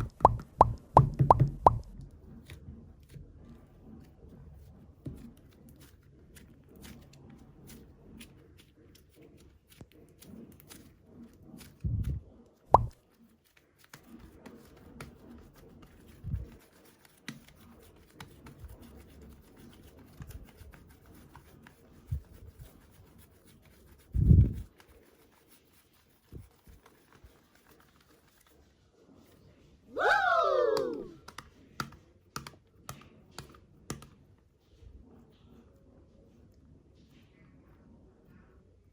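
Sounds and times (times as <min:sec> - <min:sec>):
low clay plops and thuds: 0:00.0 - 0:02.2, 0:12.8 - 0:13.0
hands squeezing soft clay: 0:00.0 - 0:31.7.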